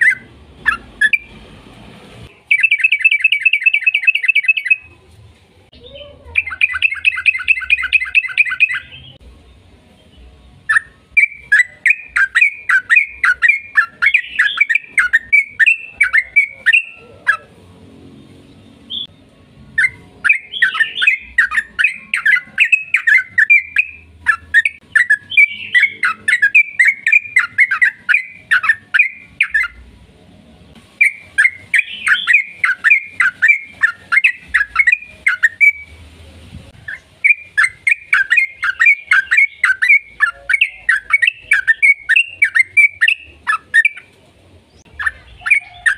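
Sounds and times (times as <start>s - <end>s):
bird singing chattering notes: 0.0s - 1.4s, 2.3s - 4.9s, 5.8s - 9.2s, 10.7s - 17.5s, 19.8s - 29.8s, 31.0s - 36.0s, 36.8s - 44.1s, 44.7s - 45.9s.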